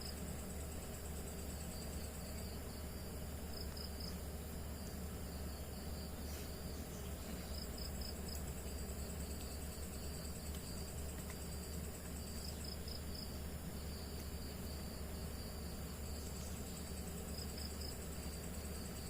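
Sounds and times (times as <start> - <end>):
crickets chirping: 0.0 - 19.0
steady background hiss: 0.0 - 19.0.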